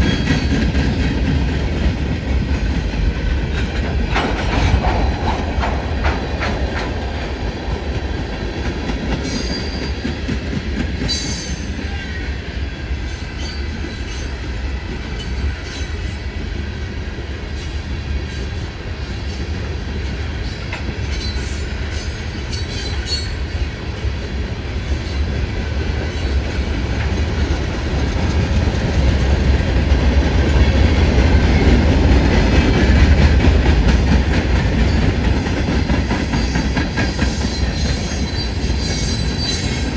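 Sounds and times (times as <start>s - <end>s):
freight train wheels clattering: 0.0s - 39.9s
train rumble: 0.0s - 39.9s
high wheel squeals: 37.3s - 39.9s.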